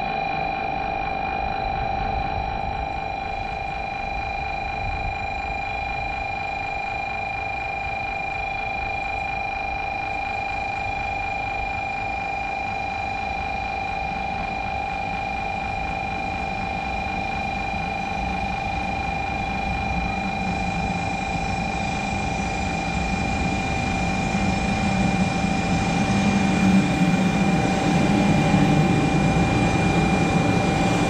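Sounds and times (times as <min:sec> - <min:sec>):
steady high-pitched tone: 0:00.0 - 0:31.0
approaching train rumble: 0:15.6 - 0:31.0.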